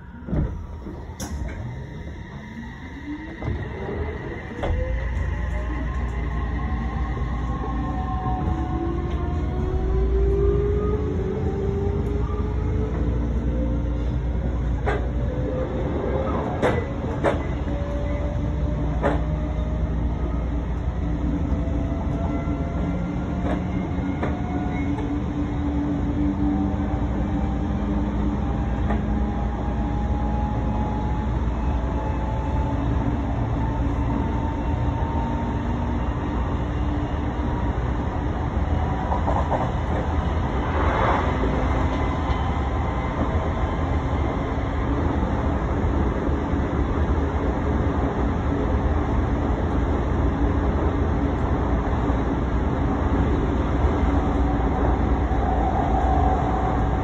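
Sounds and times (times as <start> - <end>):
train rushing: 0.0 - 57.0
train wheels rumbling on rail: 0.0 - 57.0
rail joint clicks: 0.1 - 10.4, 11.9 - 26.6, 28.4 - 29.4, 38.7 - 47.1.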